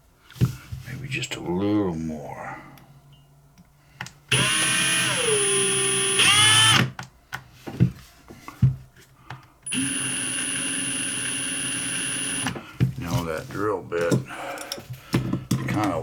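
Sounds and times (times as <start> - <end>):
small electric drill whining: 4.3 - 7.0, 9.7 - 12.6.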